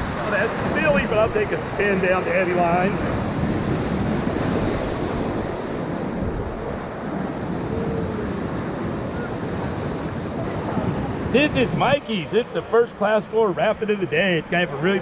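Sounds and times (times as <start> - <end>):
wind buffeting microphone: 0.0 - 12.3
river whitewater rushing: 0.0 - 15.0.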